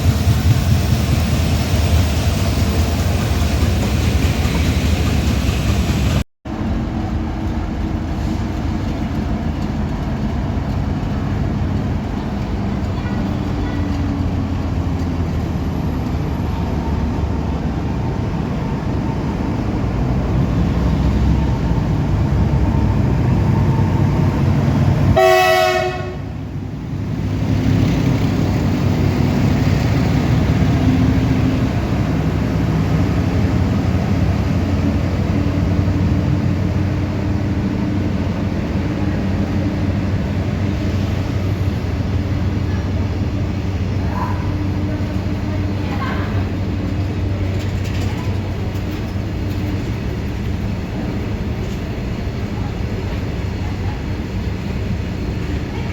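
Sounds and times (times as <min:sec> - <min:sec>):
locomotive engine rumbling: 0:00.0 - 0:55.9
train horn blast: 0:25.1 - 0:26.4.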